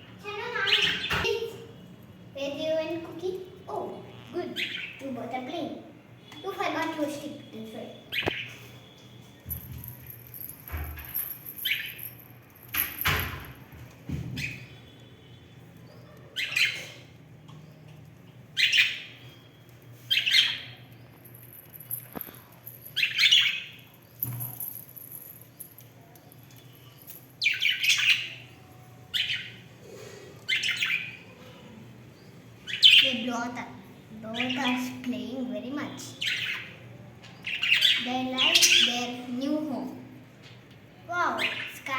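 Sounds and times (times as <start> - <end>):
budgerigars chirping and squawking: 0.4 - 1.2, 4.2 - 5.1, 8.1 - 8.7, 16.3 - 17.0, 30.5 - 31.3, 37.4 - 39.1.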